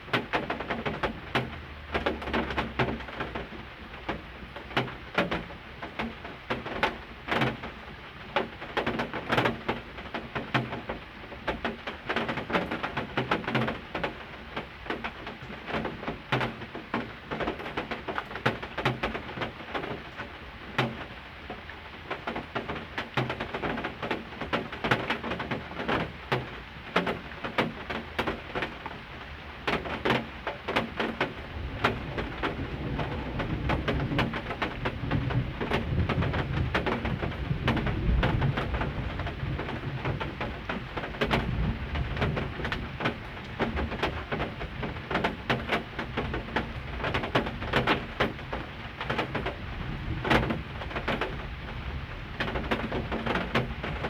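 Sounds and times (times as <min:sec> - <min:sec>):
heavy rain falling: 0:00.0 - 0:54.0
thunder rumbling: 0:30.9 - 0:54.0.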